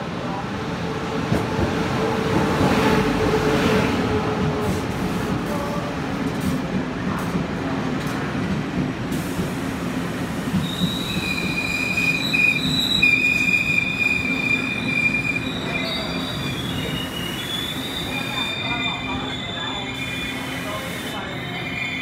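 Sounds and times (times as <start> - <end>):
train wheels rumbling on rail: 0.0 - 22.0
high brake squeal: 10.6 - 22.0.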